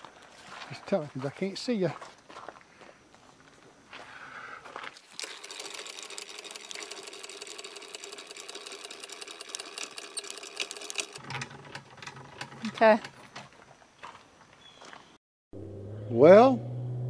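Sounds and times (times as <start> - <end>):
electric jack motor whirring: 5.1 - 11.2.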